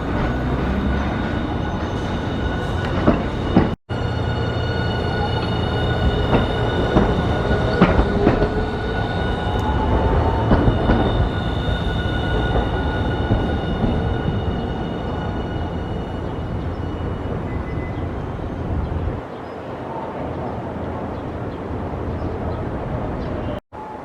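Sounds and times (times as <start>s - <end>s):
wheels clicking on rails: 0.0s - 3.8s, 5.3s - 18.1s
streetcar whine: 0.0s - 24.0s.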